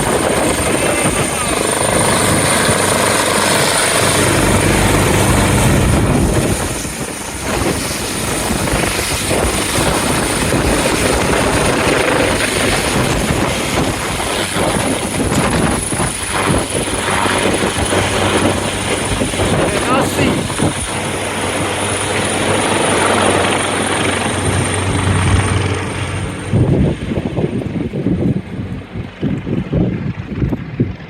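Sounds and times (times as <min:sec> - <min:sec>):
helicopter rotor thrum: 0:00.0 - 0:31.0
high turbine whine: 0:00.0 - 0:31.0
wind blowing on microphone: 0:00.0 - 0:31.0.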